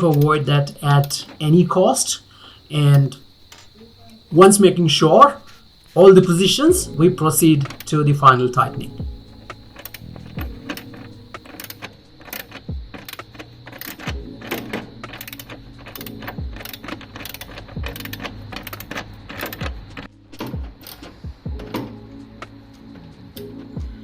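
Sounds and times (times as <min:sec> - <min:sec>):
socket ratchet clicking: 0:09.2 - 0:21.1.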